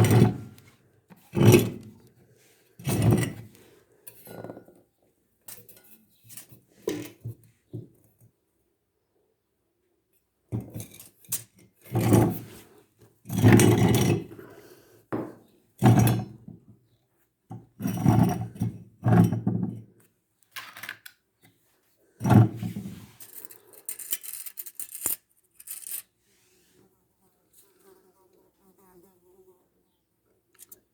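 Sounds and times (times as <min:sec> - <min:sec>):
scraping and clattering handling: 0:00.0 - 0:02.1, 0:02.8 - 0:04.8, 0:22.2 - 0:26.1.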